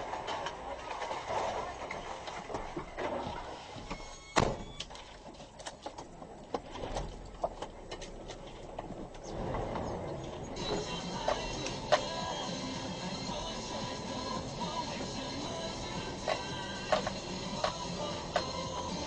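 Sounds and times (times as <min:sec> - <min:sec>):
brief squeal: 0:03.9 - 0:04.8.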